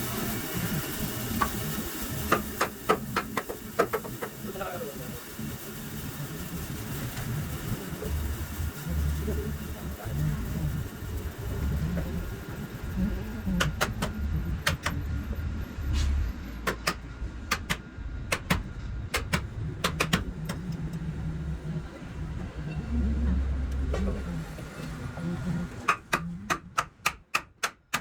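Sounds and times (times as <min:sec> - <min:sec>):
steady low rumble: 0:07.5 - 0:26.5.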